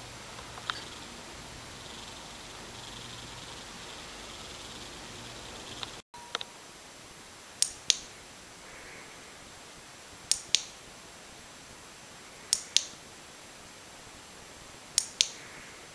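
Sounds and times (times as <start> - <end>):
faint steady hiss: 0.0 - 15.9
sharp paired clicks: 7.6 - 8.1, 10.3 - 10.8, 12.5 - 13.0, 15.0 - 15.5.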